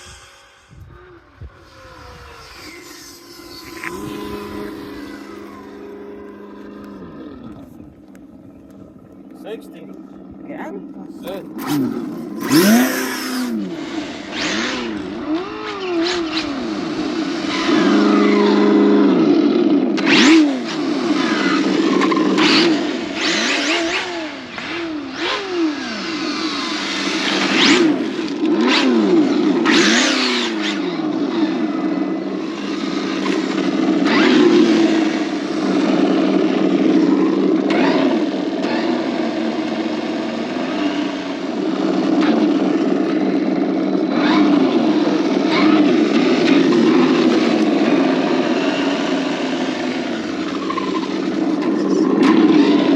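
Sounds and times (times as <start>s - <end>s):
short whooshing bursts: 0.0s - 6.8s
rc car motor revving: 0.0s - 52.9s.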